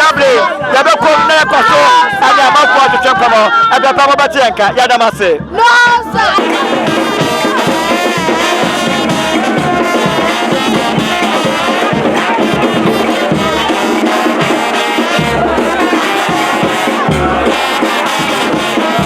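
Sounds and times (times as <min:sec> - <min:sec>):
brass music: 0:06.2 - 0:19.0.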